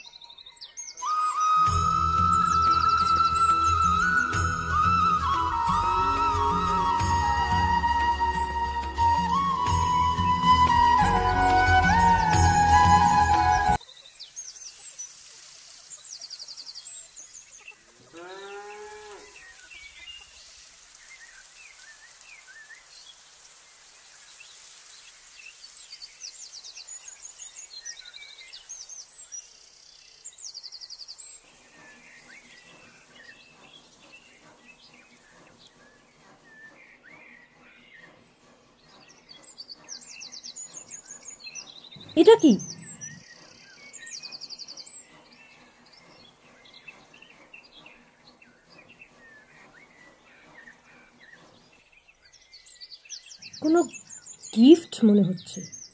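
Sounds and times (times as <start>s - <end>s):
small birds chirping: 0.0s - 11.0s, 11.6s - 55.9s
cow mooing: 18.1s - 19.4s.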